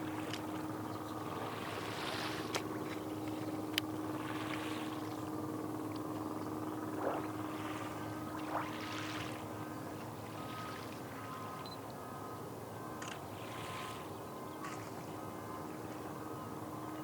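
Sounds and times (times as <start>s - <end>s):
steady low hum: 0.0s - 17.0s
small waves washing on shore: 1.3s - 5.4s, 6.9s - 11.4s.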